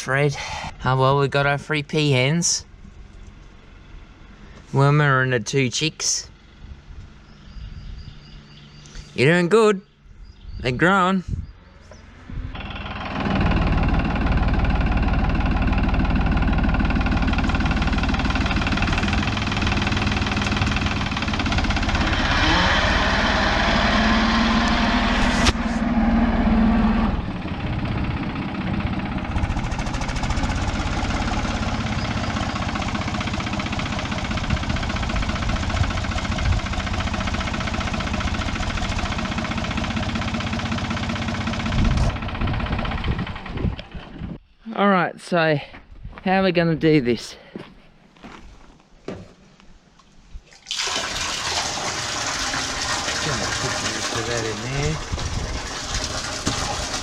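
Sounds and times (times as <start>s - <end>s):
vehicle engine running: 2.4s - 9.0s, 11.6s - 44.4s, 52.2s - 57.0s.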